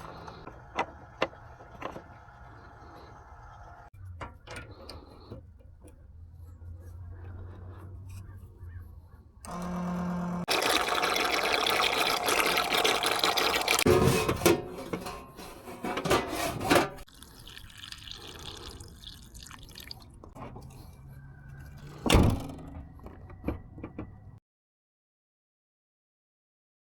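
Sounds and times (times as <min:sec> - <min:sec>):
liquid pouring and gurgling: 0:10.4 - 0:13.9, 0:17.1 - 0:20.4.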